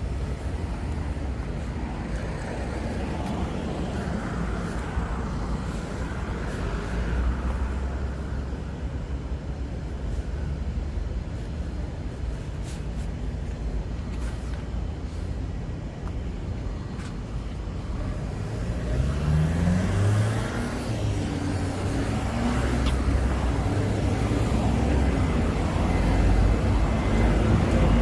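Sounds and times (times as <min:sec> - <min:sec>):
constant low rumble: 0:00.0 - 0:18.3
traffic noise: 0:00.0 - 0:28.0
vehicle passing close by: 0:18.4 - 0:28.0.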